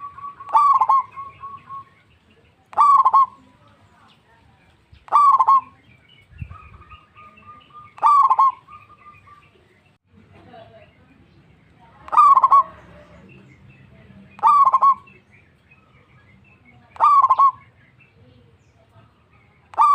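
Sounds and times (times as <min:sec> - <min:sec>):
dove cooing: 0:00.0 - 0:02.0, 0:02.7 - 0:03.6, 0:05.1 - 0:09.4, 0:12.0 - 0:13.0, 0:14.4 - 0:15.2, 0:16.9 - 0:17.7
faint bird chirps: 0:00.0 - 0:10.0, 0:11.0 - 0:19.9.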